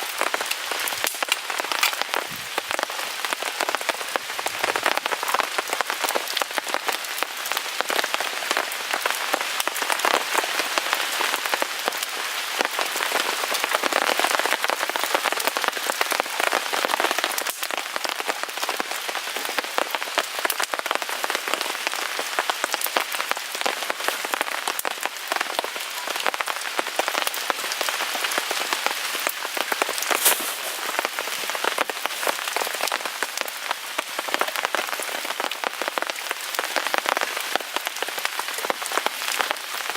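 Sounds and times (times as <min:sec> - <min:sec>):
rain pattering on a tarp: 0:00.0 - 0:39.9
sharp crack: 0:00.8 - 0:02.8, 0:29.8 - 0:32.4.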